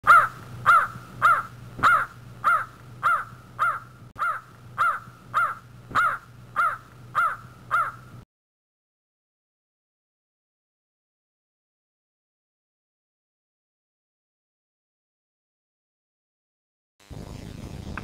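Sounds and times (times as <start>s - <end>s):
bird calling: 0.0s - 8.2s.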